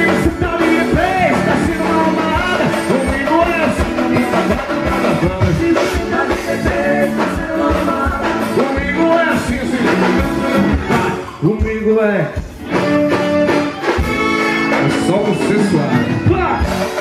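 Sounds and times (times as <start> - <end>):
person singing: 0.0 - 11.4
live band dance music: 0.0 - 17.0.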